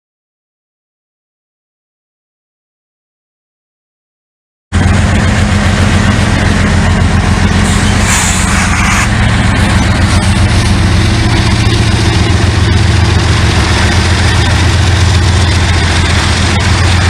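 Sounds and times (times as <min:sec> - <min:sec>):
diesel locomotive engine running: 0:04.7 - 0:17.0.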